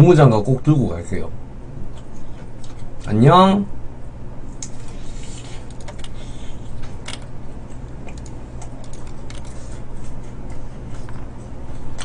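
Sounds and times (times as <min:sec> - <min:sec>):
steady low hum: 0:00.0 - 0:12.0
chewing with mouth clicks: 0:07.8 - 0:09.2.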